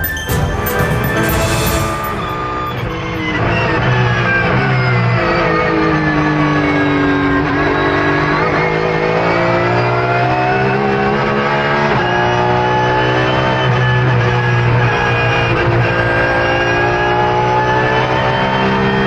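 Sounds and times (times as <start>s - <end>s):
music: 0.0s - 4.0s
racing car engine: 3.2s - 19.0s.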